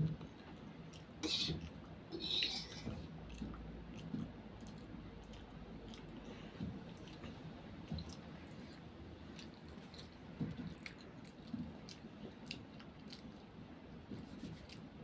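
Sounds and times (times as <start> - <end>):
child chewing noodles: 0.0 - 15.0.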